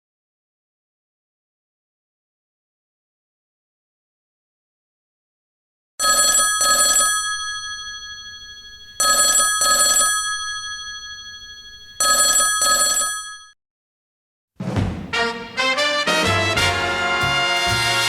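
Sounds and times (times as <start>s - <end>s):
telephone bell double ring: 6.0s - 13.6s.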